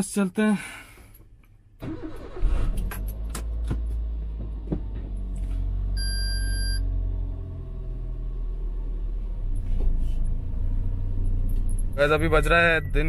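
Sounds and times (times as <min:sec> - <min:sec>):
car engine starting and running: 0:00.0 - 0:13.0
short electronic beep: 0:06.0 - 0:06.8.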